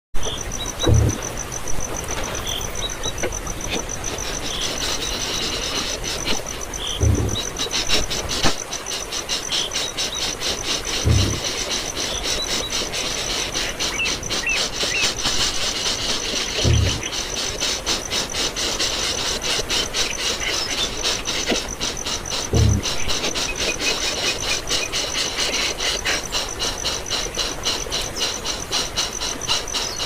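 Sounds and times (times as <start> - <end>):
high-pitched insect trill: 0.2 - 30.0
low thump: 0.8 - 1.2, 7.0 - 7.4.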